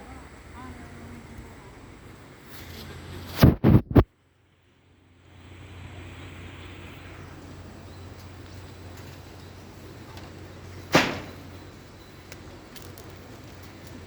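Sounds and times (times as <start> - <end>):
steady background noise: 0.0 - 14.0
loud sharp ringing knock: 10.9 - 11.4.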